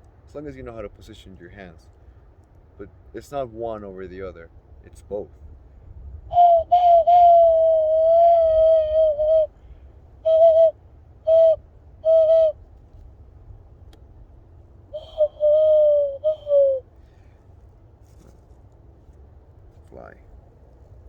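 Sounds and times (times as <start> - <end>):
cupped-hand owl-like whistle: 6.2 - 12.6, 14.9 - 16.9.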